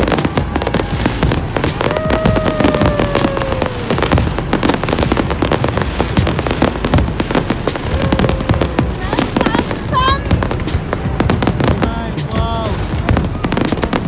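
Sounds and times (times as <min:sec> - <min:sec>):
falling firework whistle: 0:00.0 - 0:14.0
fireworks crackling and popping: 0:00.0 - 0:14.0.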